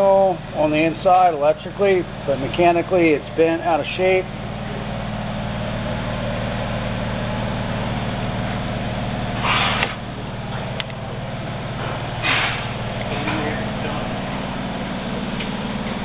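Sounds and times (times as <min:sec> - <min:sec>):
lathe running with motor hum: 0:00.0 - 0:16.0
brief rasping noises: 0:09.4 - 0:10.0.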